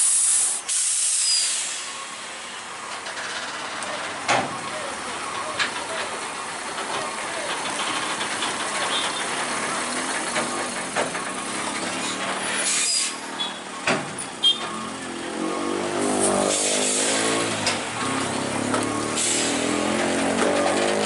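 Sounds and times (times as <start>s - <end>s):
air hissing: 0.0s - 2.0s, 16.4s - 17.3s, 19.1s - 19.8s
heavy truck engine running: 1.4s - 21.0s.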